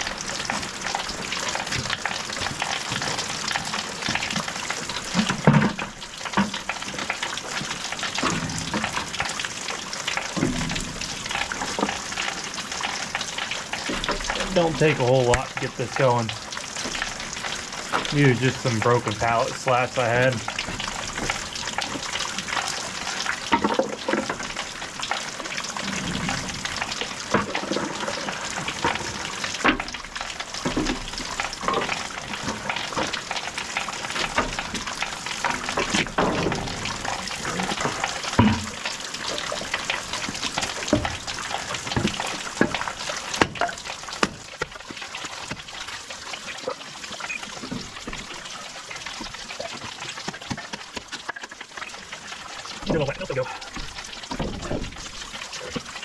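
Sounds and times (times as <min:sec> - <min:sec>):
heavy rain falling: 0:00.0 - 0:56.0
wooden slats knocking and clattering: 0:07.6 - 0:13.1, 0:23.5 - 0:24.5, 0:53.7 - 0:55.8.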